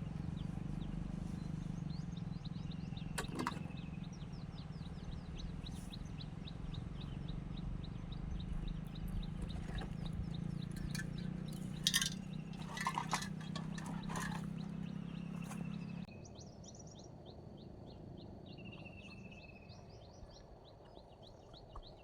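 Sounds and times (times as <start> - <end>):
bird chirping: 0.1 - 22.0
sharp clinks: 10.6 - 14.6.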